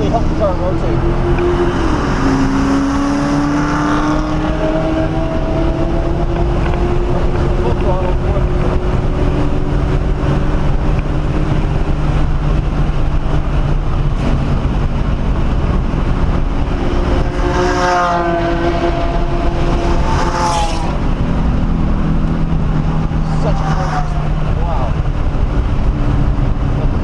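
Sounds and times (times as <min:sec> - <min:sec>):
car engine at full throttle: 0:00.0 - 0:27.0.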